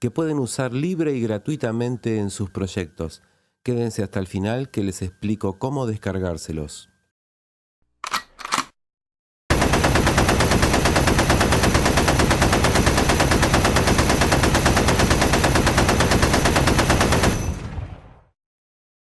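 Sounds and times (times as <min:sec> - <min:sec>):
automatic weapon firing burst: 0:09.5 - 0:18.0.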